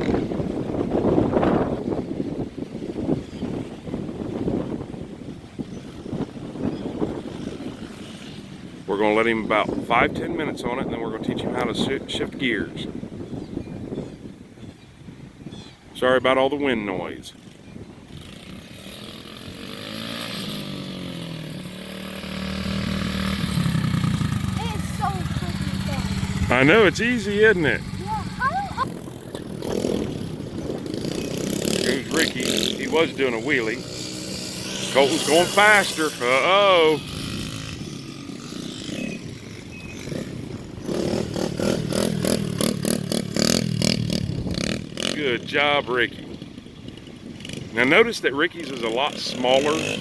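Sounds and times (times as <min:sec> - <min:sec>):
wind noise on microphone: 0:00.0 - 0:49.2
dirt bike engine revving: 0:18.1 - 0:50.0.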